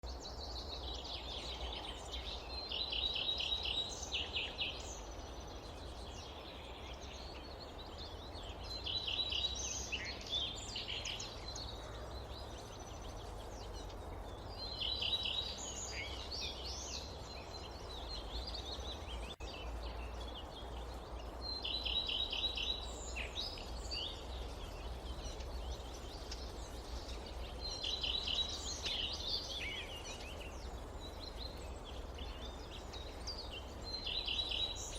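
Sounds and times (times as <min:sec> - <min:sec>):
songbird singing: 0:00.0 - 0:34.9.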